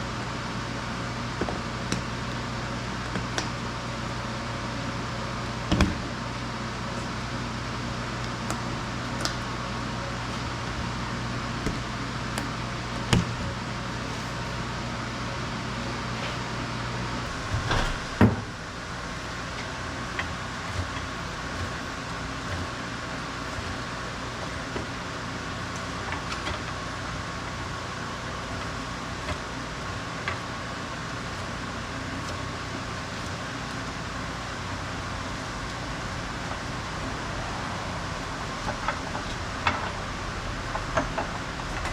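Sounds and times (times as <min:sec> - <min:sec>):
mechanical hum: 0:00.0 - 0:41.9
workshop background noise: 0:05.4 - 0:25.0.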